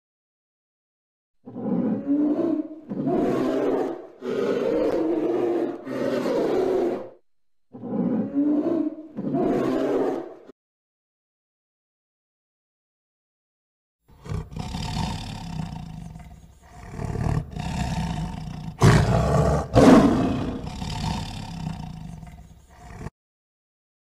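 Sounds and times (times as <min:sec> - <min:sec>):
tiger roaring: 0:01.4 - 0:10.4, 0:14.2 - 0:23.1.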